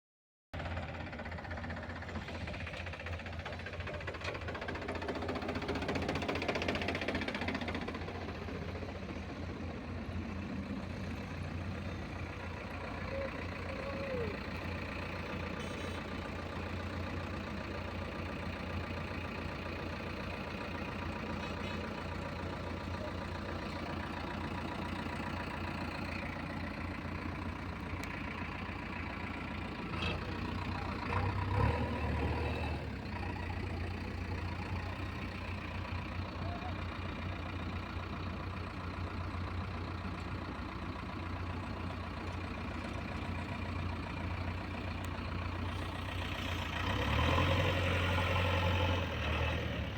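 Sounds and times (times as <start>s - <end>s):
diesel engine running at low revs: 0.6s - 49.9s.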